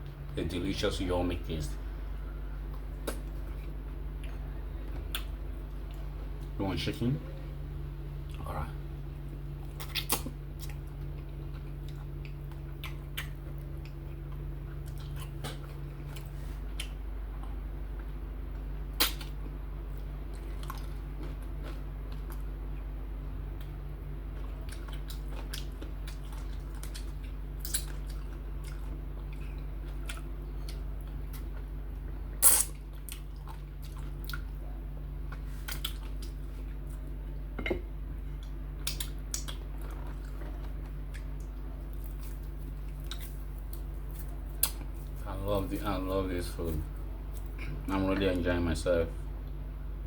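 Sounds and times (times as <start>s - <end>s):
steady low hum: 0.0s - 50.0s
wet chewing and biting: 9.6s - 22.8s, 23.5s - 37.0s, 38.3s - 45.2s.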